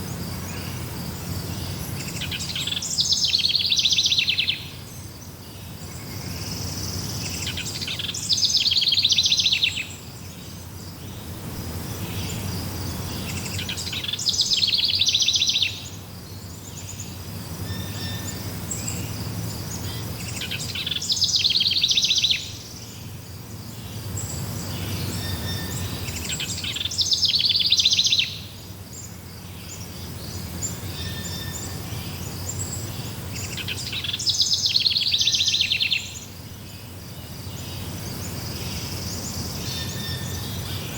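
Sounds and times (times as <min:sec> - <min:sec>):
faint insect chirring: 0:00.0 - 0:40.9
songbird trilling: 0:01.5 - 0:05.0, 0:05.9 - 0:23.2, 0:24.8 - 0:36.4.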